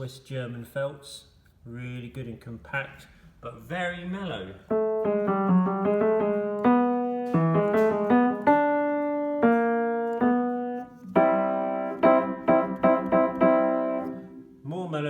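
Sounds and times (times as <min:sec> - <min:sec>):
upright piano playing chords: 0:04.6 - 0:14.6.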